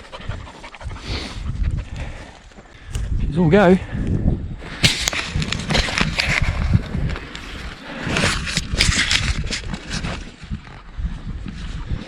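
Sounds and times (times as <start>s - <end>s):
rustling dry grass and brush: 4.4s - 12.0s.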